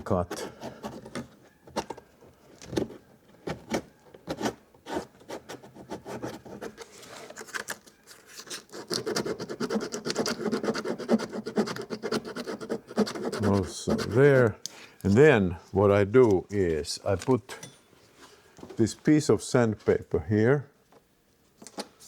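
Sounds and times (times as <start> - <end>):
sandpaper rubbing edge: 8.7 - 14.5.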